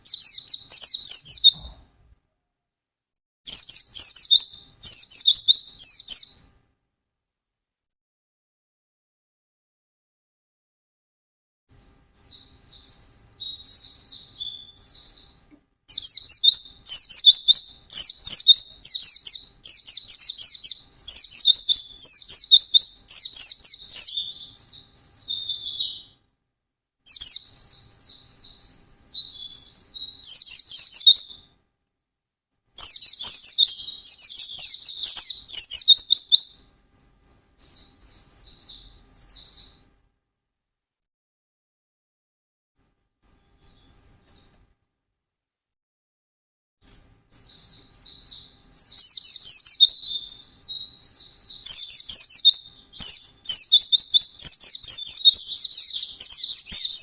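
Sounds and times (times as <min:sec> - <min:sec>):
bird twittering song: 0:00.0 - 0:01.9, 0:03.5 - 0:06.6, 0:11.7 - 0:26.2, 0:27.0 - 0:31.5, 0:32.7 - 0:39.9, 0:42.8 - 0:44.6, 0:46.8 - 0:57.0.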